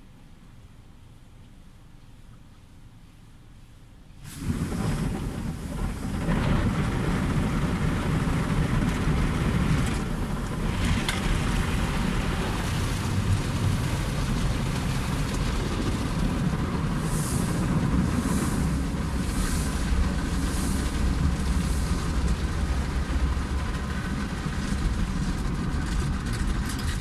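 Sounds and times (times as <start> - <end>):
low mechanical rumble: 0.0 - 27.0
spraying water rushing: 4.2 - 24.6.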